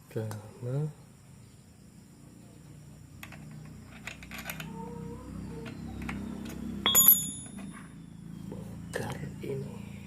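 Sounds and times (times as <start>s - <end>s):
small parts clicking and tapping: 3.2s - 4.8s, 5.6s - 7.8s.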